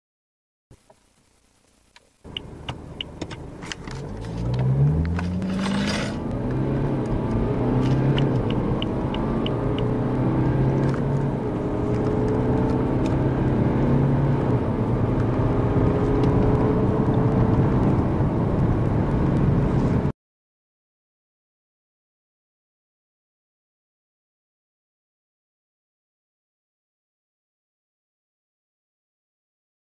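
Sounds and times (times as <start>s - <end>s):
light ticks: 1.9s - 3.4s, 8.1s - 9.9s
diesel car engine accelerating: 2.2s - 20.1s.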